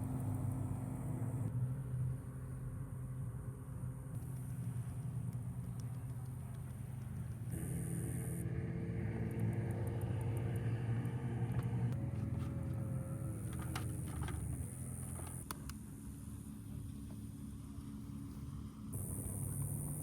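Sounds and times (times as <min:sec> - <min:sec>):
motor humming: 0:04.2 - 0:17.3.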